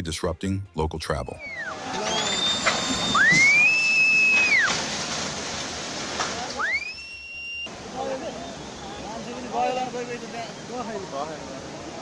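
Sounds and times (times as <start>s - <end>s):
long high whistles: 1.2s - 4.7s, 6.6s - 7.7s, 8.3s - 9.3s
rushing floodwater: 1.8s - 7.1s, 7.7s - 12.0s.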